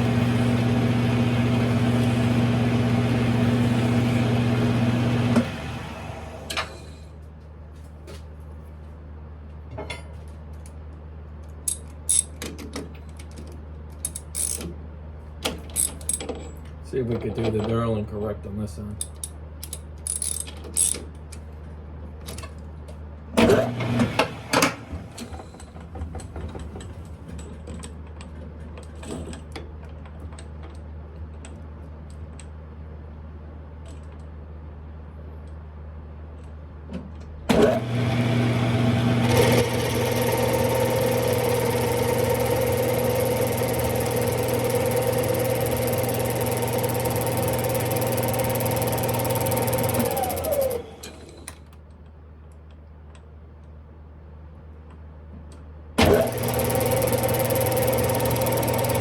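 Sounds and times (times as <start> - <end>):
lathe motor hum and whine: 0.0 - 7.0, 23.4 - 25.2, 37.5 - 51.5, 56.0 - 59.0.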